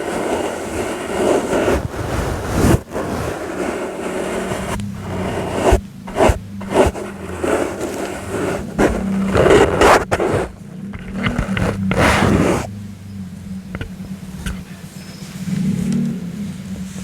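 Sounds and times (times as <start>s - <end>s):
brush scratching on microphone: 0.0s - 12.7s.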